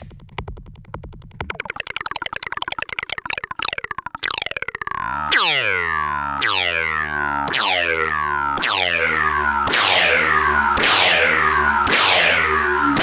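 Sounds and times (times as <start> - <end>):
fast stuttering synth pulses: 0.7 - 13.0
falling-pitch laser zaps with reverb: 5.2 - 13.0.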